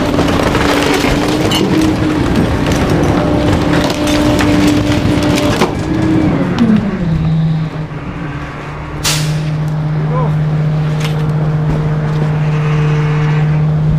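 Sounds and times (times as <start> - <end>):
wood cracking and splintering: 0.0 - 6.8
truck engine and hydraulics: 0.0 - 13.9.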